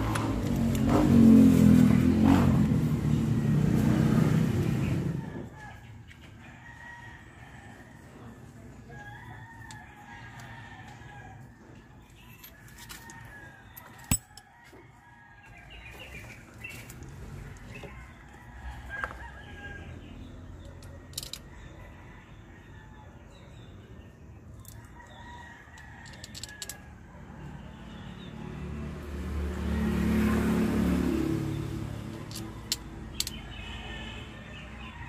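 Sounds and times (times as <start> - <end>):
rooster crowing: 5.0 - 11.8, 17.6 - 20.4, 24.7 - 28.5, 33.4 - 35.0
sharp clicks and clinks: 14.0 - 14.5, 20.6 - 21.5, 32.2 - 33.4.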